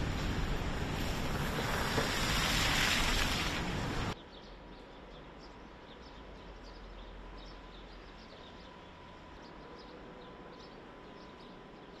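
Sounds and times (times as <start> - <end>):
faint rumble of traffic: 0.0 - 12.0
small birds chirping: 4.1 - 12.0.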